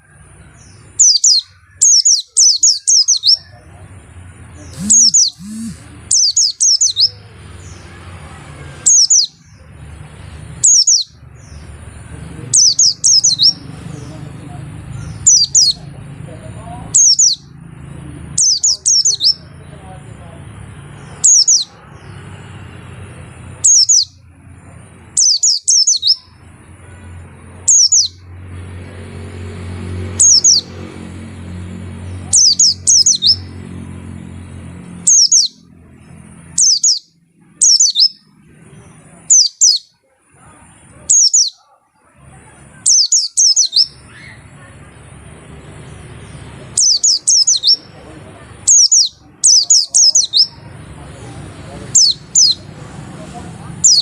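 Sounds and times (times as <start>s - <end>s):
bird chirping: 0.0s - 20.2s, 20.8s - 54.0s.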